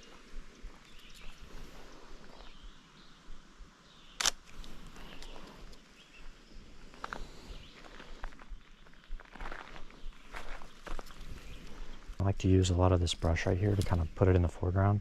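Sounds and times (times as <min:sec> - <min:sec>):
faint bird chirps: 0:00.0 - 0:12.3
camera shutter click: 0:04.2 - 0:04.5
soft crackles: 0:04.2 - 0:14.5.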